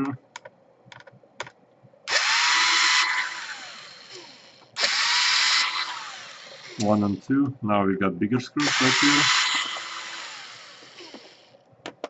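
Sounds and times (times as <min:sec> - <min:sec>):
electric screwdriver spinning: 0:02.1 - 0:06.9, 0:08.6 - 0:11.5.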